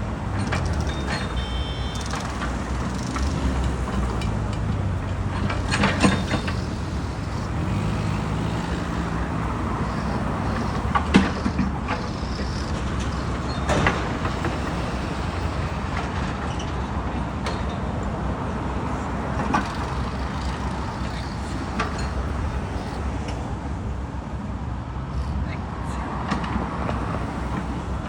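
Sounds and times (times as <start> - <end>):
construction machinery engine rumble: 0.0 - 24.7
sharp metallic knocks: 0.3 - 18.1.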